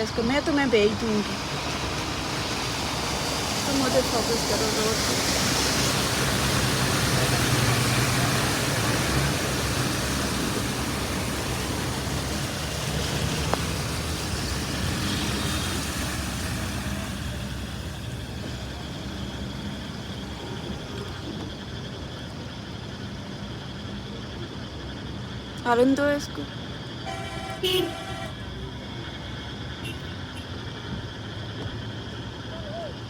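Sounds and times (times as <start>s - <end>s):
car engine and road hum: 0.0s - 23.6s
water spray from car tyres: 0.1s - 21.6s.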